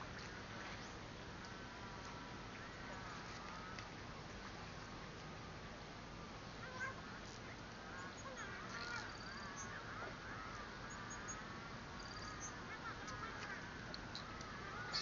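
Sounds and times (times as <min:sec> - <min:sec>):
faint sliding bird calls: 0:06.7 - 0:15.0
high bird chirps: 0:07.9 - 0:10.0, 0:10.6 - 0:13.4.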